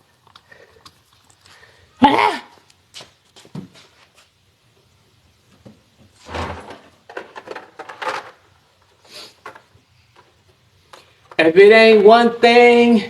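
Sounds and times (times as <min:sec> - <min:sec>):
scraping rustle: 0:06.1 - 0:08.4
tools knocking and clattering: 0:06.3 - 0:08.4.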